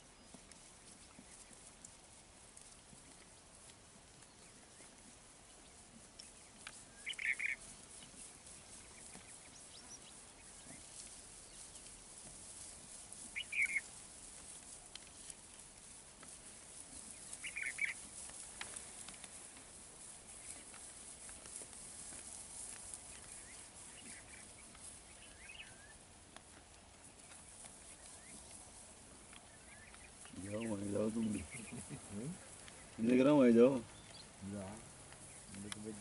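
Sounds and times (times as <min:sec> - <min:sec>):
bird calling quick notes: 0:07.0 - 0:07.6, 0:13.4 - 0:13.8.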